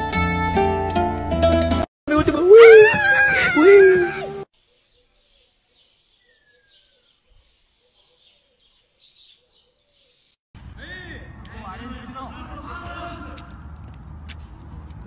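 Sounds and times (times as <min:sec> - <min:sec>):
bird chirps and twittering: 0:04.6 - 0:10.4.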